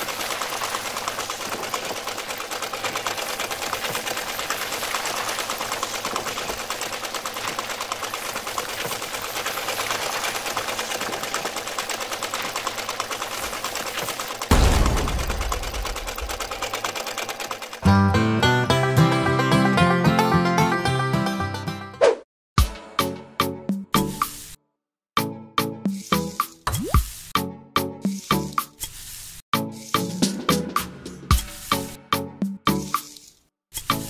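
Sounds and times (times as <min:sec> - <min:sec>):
low thump and rumble: 0:14.5 - 0:16.6.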